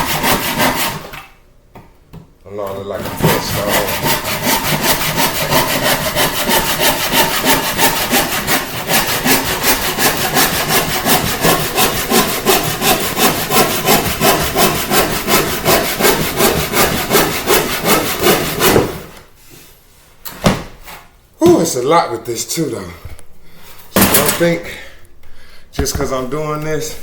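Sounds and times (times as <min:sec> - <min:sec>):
hand saw cutting wood: 0:00.0 - 0:01.3, 0:02.8 - 0:19.2.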